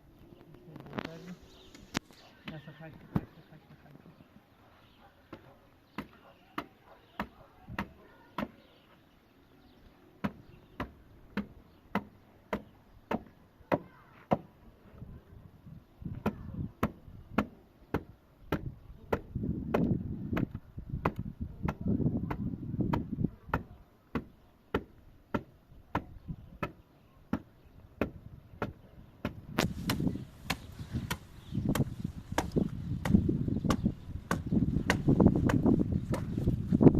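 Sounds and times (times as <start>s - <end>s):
hand tool striking wood: 10.2s - 14.5s, 16.2s - 36.4s.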